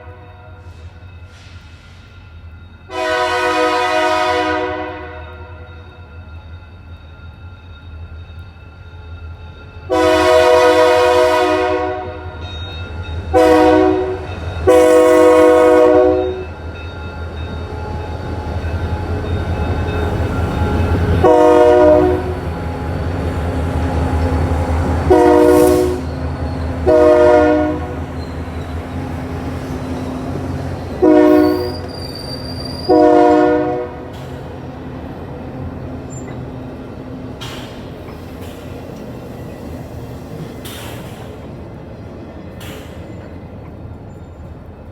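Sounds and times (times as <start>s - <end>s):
locomotive air horn blasts: 0.0s - 0.8s, 2.9s - 5.7s, 9.9s - 12.4s, 13.3s - 16.4s, 21.2s - 22.4s, 25.0s - 26.1s, 26.8s - 28.0s, 31.0s - 31.9s, 32.8s - 34.1s
train rumble: 0.0s - 44.9s.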